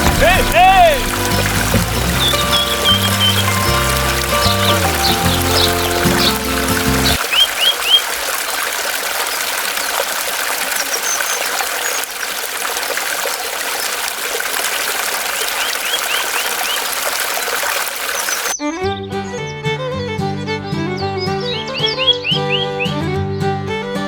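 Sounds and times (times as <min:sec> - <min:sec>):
background music: 0:00.0 - 0:07.2
small birds chirping: 0:00.0 - 0:12.6, 0:14.7 - 0:18.7, 0:20.6 - 0:23.6
water trickling: 0:00.0 - 0:18.6.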